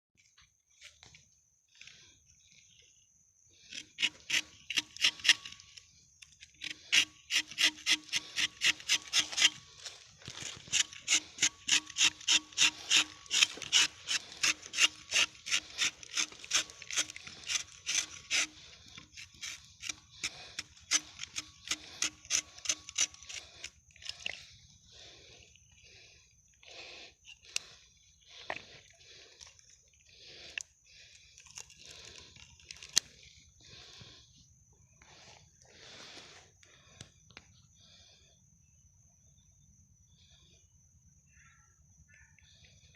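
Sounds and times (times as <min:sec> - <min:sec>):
knife scraping tree bark: 0:03.6 - 0:29.4, 0:30.1 - 0:34.2.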